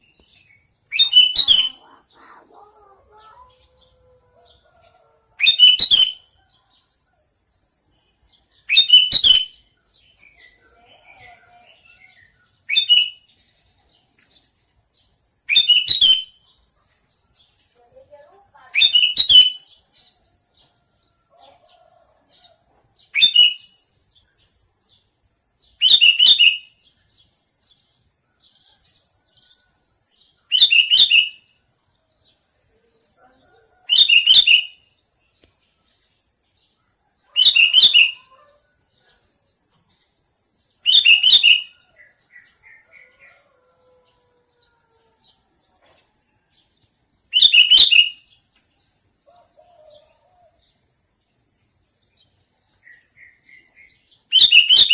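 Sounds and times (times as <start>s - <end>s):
bulbul calling: 0.0s - 4.6s, 40.8s - 43.4s
high bird chattering: 0.9s - 3.8s.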